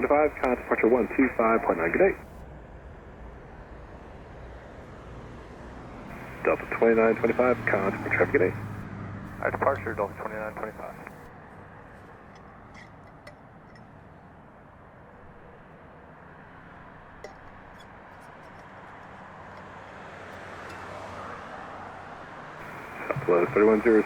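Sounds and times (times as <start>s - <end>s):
distant aircraft rumble: 0.0s - 24.0s
faint clicks: 0.1s - 2.4s, 9.3s - 11.3s.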